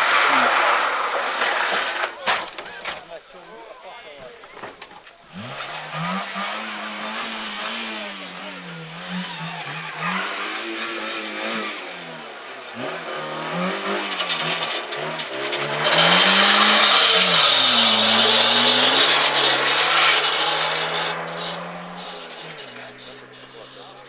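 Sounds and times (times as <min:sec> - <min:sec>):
loud rushing noise: 0:00.0 - 0:03.2, 0:13.6 - 0:23.4
car engine revving: 0:00.0 - 0:24.0.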